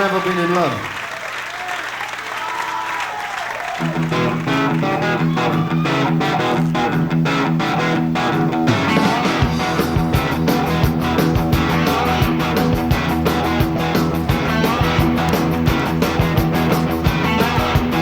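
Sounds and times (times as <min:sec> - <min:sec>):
bass guitar: 0:03.8 - 0:18.0
drums: 0:03.8 - 0:18.0
strummed electric guitar chords: 0:03.8 - 0:18.0.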